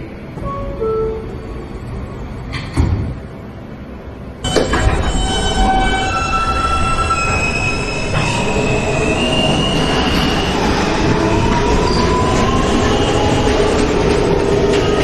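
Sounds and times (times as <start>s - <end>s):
train wheels rumbling on rail: 0.0s - 15.0s
wheel squeal and whines: 4.5s - 15.0s.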